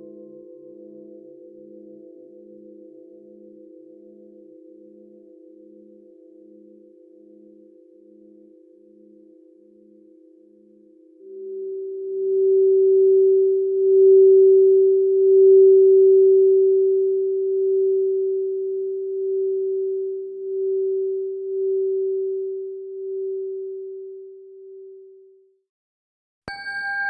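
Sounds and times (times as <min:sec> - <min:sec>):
singing bowl ringing: 0:00.0 - 0:05.8, 0:26.5 - 0:27.0.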